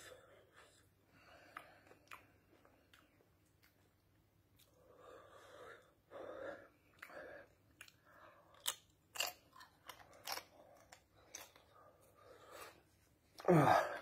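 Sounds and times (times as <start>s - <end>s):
man chewing crunchy corn chips: 7.7s - 11.8s.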